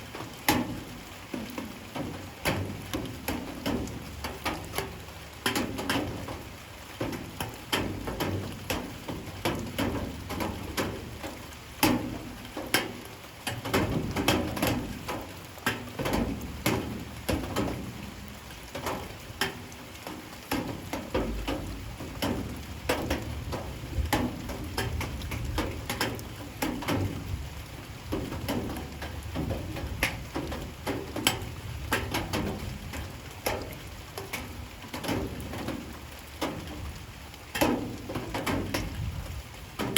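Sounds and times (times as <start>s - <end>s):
rain patter: 0.0s - 39.9s
drops ticking on hard surface: 0.4s - 27.4s, 28.0s - 39.9s.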